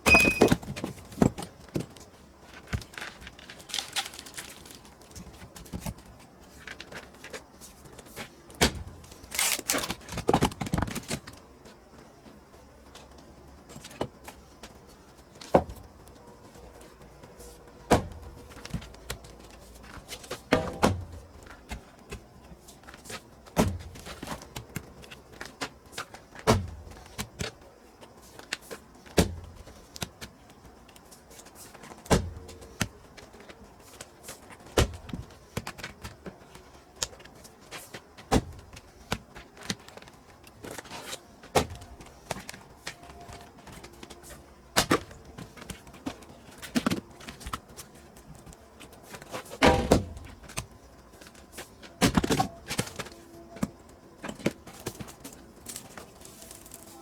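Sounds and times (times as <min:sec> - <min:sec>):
firewood splitting strikes: 0:00.0 - 0:00.9.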